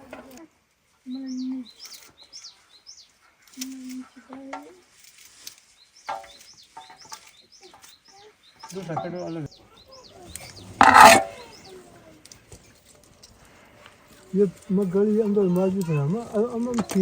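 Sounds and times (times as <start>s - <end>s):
small bird chirping: 1.1s - 4.0s.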